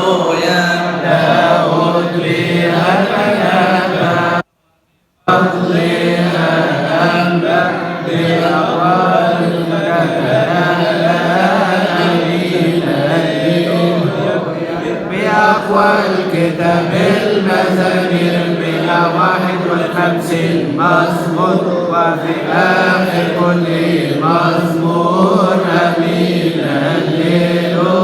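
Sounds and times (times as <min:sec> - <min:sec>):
man chanting a hymn: 0:00.0 - 0:04.5, 0:05.2 - 0:28.0.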